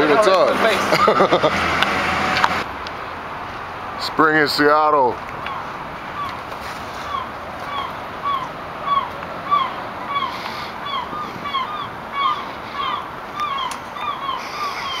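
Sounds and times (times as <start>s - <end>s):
outdoor background noise: 0.0s - 15.0s
bird calling: 5.4s - 15.0s.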